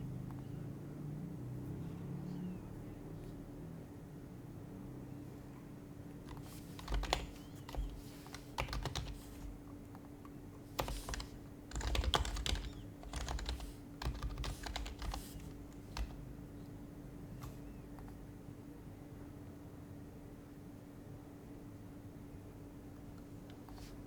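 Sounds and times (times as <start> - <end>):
faint steady hum: 0.0 - 24.0
keyboard typing clicks: 6.3 - 10.1, 10.8 - 16.2.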